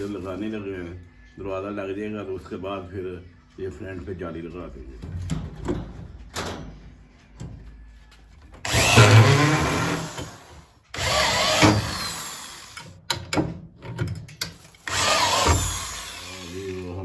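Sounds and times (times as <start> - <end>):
electric drill running: 8.7 - 12.9, 14.8 - 17.0.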